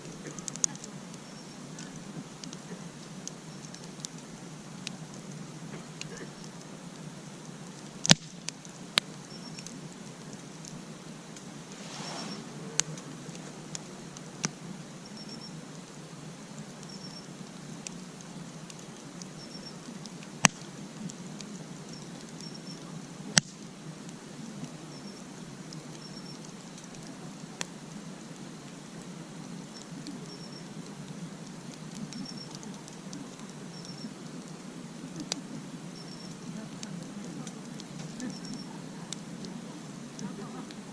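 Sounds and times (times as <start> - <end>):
burning wood popping: 0.0 - 40.9
campfire crackling: 0.0 - 40.9
faint high chirps: 9.2 - 9.7, 15.0 - 15.6, 16.8 - 17.4, 19.3 - 19.9, 24.9 - 25.2, 26.0 - 26.4, 29.7 - 30.7, 33.7 - 34.2, 35.9 - 36.5, 38.2 - 38.8.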